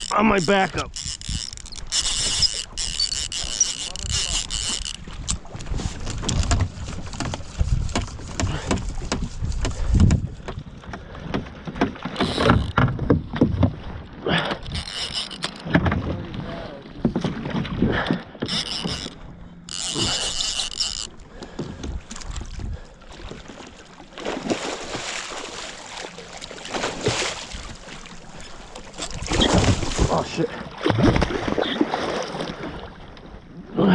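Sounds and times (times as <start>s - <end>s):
kayak gear knocking and rubbing: 0.0s - 16.4s, 17.0s - 22.7s, 28.4s - 30.2s.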